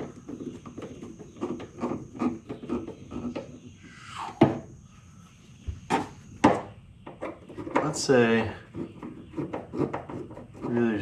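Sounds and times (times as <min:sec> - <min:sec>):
hand tool rasping: 0:00.0 - 0:03.7, 0:07.5 - 0:11.0.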